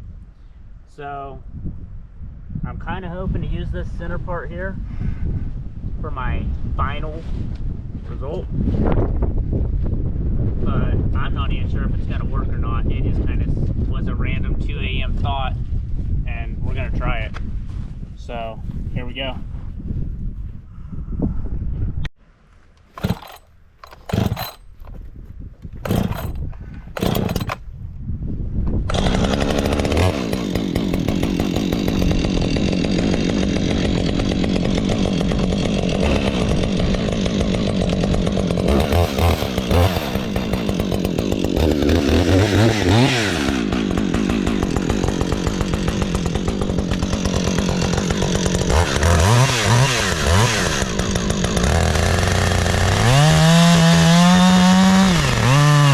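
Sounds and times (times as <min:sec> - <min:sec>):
chainsaw revving and cutting log: 0:23.0 - 0:25.0, 0:25.8 - 0:27.6, 0:28.9 - 0:55.9.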